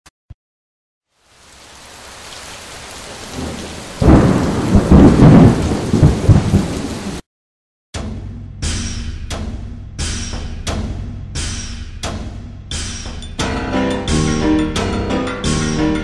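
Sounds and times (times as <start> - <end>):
rain: 1.0 - 7.2
thunder rumble: 3.1 - 7.2.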